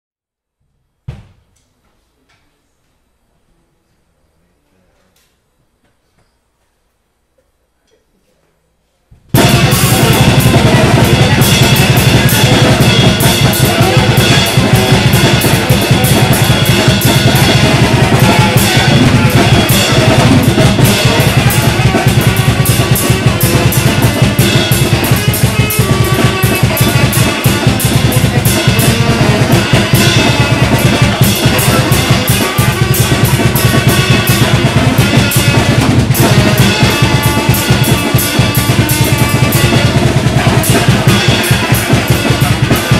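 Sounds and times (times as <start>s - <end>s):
free-improvised noise music: 9.2s - 42.9s
drum kit fast barrage: 9.3s - 42.9s.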